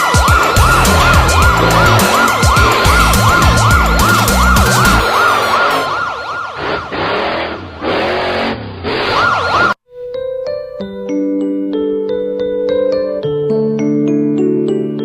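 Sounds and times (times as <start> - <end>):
low beat: 0.0 - 5.1
cartoon siren wailing: 0.0 - 7.0, 9.0 - 9.8.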